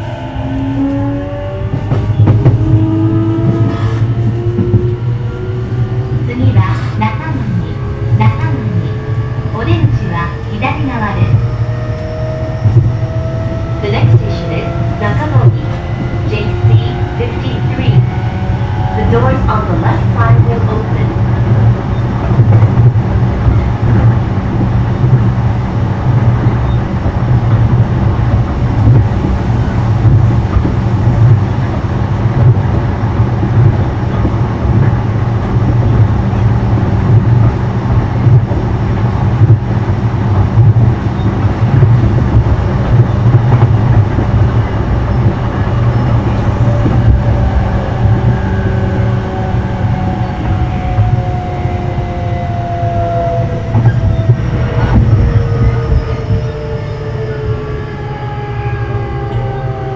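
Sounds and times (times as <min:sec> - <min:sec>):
electric train rumble and hum: 0:00.0 - 0:59.9
faint rising whining tones: 0:41.0 - 0:59.9.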